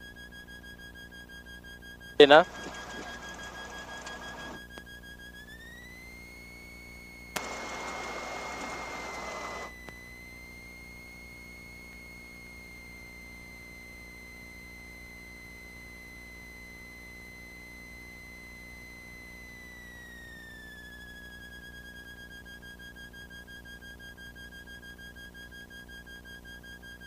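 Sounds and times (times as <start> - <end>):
radio static burst: 2.2 - 4.6, 7.4 - 9.7
radio click: 2.4 - 4.6, 7.4 - 9.7
high whine: 5.7 - 13.9.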